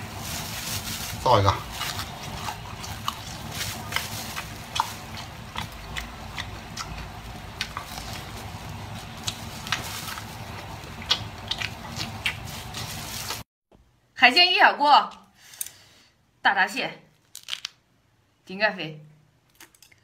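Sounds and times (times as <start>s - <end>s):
chewing and biting meat: 1.1s - 13.4s.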